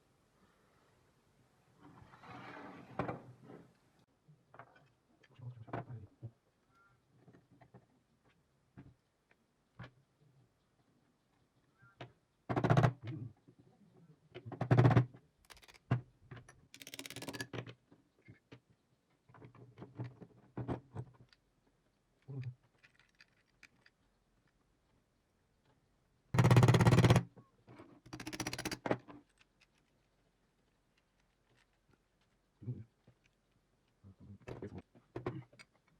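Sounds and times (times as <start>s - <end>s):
metal parts clicking and rattling: 15.4s - 15.9s, 16.5s - 17.6s, 22.6s - 24.1s, 28.1s - 32.4s.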